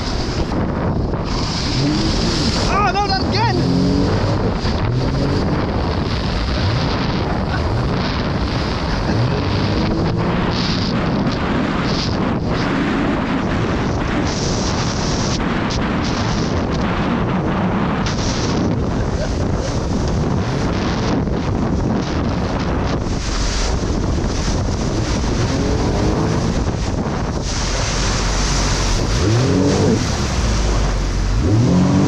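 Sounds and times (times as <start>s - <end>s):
jet ski engine: 0.0s - 32.0s
wind buffeting on microphone: 0.0s - 32.0s
water spray hissing: 23.1s - 32.0s.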